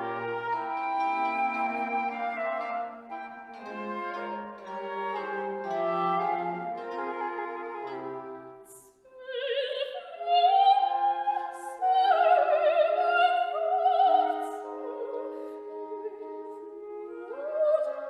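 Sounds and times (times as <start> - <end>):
orchestral accompaniment: 0.0 - 8.7
operatic singing with vibrato: 2.0 - 18.0.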